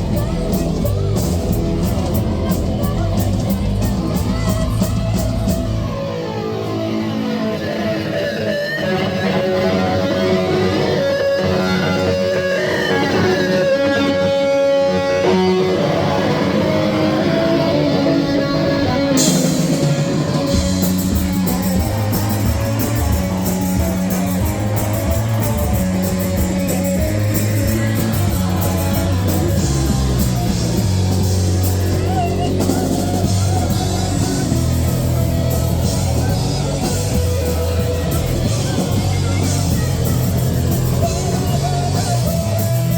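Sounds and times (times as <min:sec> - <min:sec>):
drums and cymbals crashing: 0:00.0 - 0:06.1, 0:17.7 - 0:42.9
electric guitar notes: 0:00.0 - 0:42.9
rock band playing live: 0:00.0 - 0:42.9.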